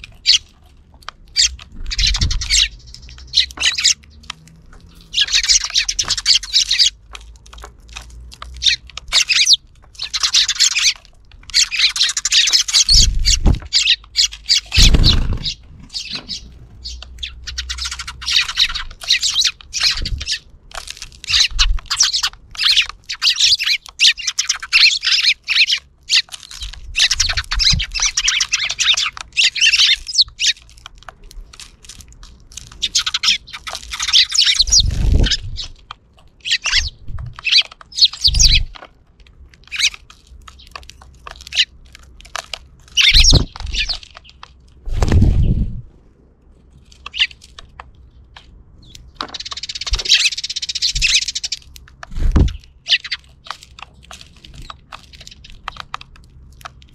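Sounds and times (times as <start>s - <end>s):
sparrows chirping: 0.0s - 45.7s, 46.7s - 56.9s
low thumps: 14.8s - 16.2s.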